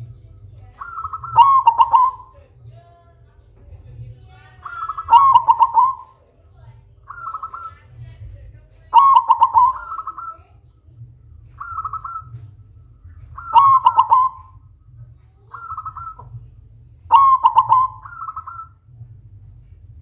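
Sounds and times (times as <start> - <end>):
dove cooing: 0.7 - 2.4, 4.5 - 6.2, 7.0 - 8.0, 8.9 - 10.5, 11.6 - 12.6, 13.2 - 14.6, 15.5 - 16.5, 17.1 - 18.8.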